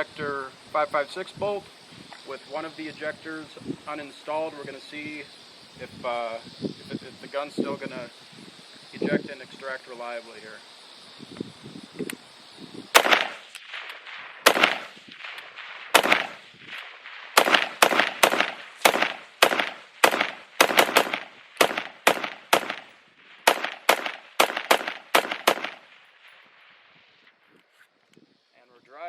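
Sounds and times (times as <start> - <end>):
rifle gunshots: 13.0 - 26.0.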